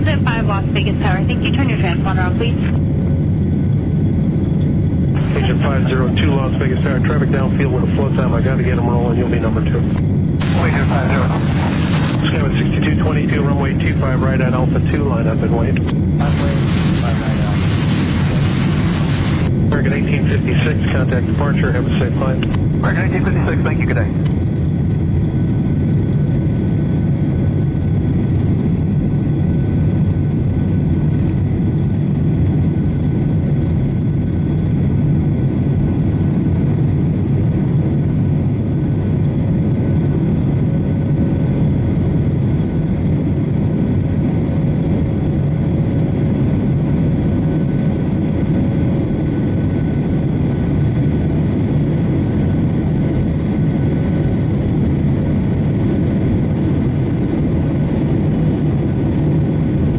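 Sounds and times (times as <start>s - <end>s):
faint engine whining tones: 0.0s - 59.9s
jet engine low rumble: 0.0s - 59.9s.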